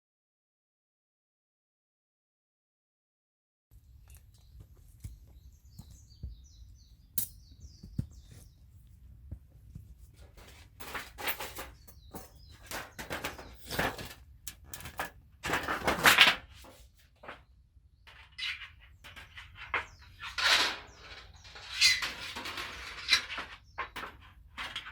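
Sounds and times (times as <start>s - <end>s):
small birds chirping: 3.7s - 10.8s, 11.4s - 14.0s, 16.8s - 24.9s
rustles and knocks: 7.2s - 17.5s.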